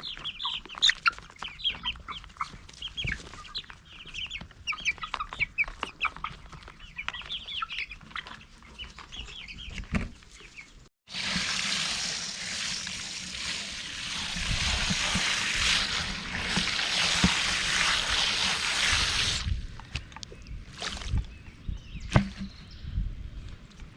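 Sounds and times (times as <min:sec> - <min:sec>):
chickens clucking: 0:00.0 - 0:10.7
running water rushing: 0:11.1 - 0:19.5.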